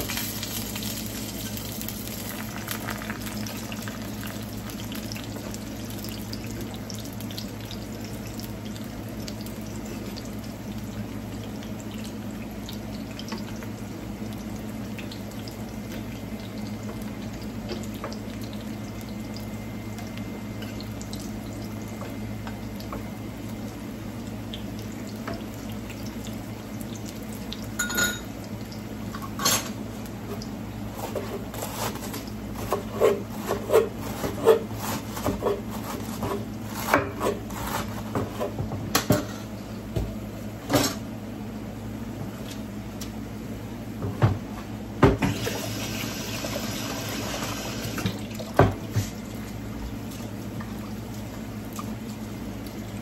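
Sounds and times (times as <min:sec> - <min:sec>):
plantain slices sizzling in oil: 0:00.0 - 0:06.4.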